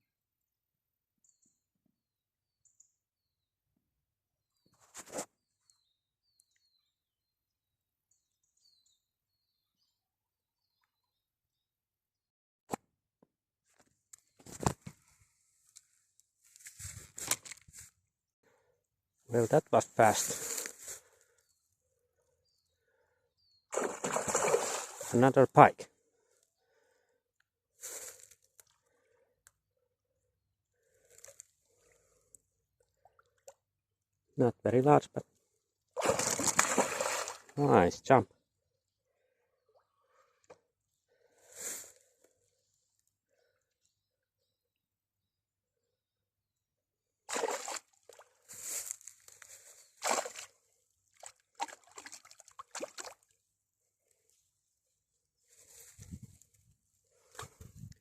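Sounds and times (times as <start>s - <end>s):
fish thrashing water: 23.7s - 25.1s, 36.0s - 37.6s, 47.3s - 48.3s, 50.0s - 50.5s, 51.2s - 53.3s.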